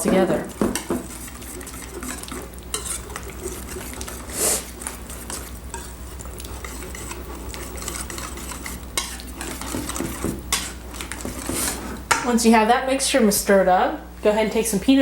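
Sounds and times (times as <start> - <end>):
whisk clinking against bowl: 0.0 - 11.8.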